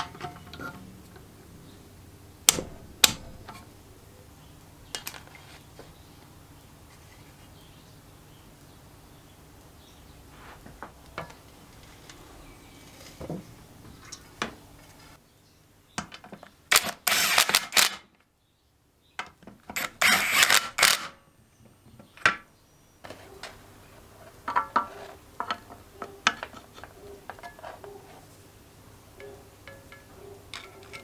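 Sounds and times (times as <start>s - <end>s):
hand tools clicking and knocking: 16.0s - 18.1s, 19.2s - 21.2s, 29.2s - 31.0s
rapid clicking: 19.8s - 21.1s.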